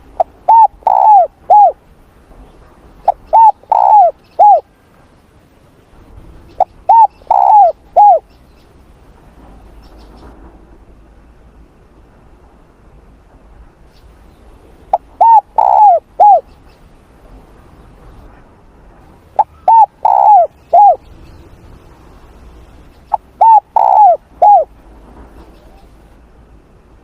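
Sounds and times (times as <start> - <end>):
dove cooing: 0.0 - 1.8, 3.0 - 4.7, 6.6 - 8.3, 14.9 - 16.5, 19.4 - 21.1, 23.1 - 24.8.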